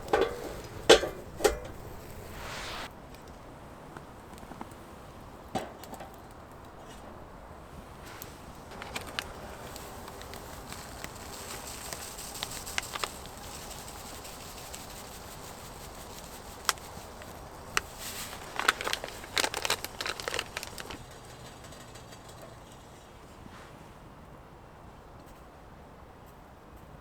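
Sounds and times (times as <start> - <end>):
campfire crackling and popping: 0.0 - 3.3, 7.9 - 22.8.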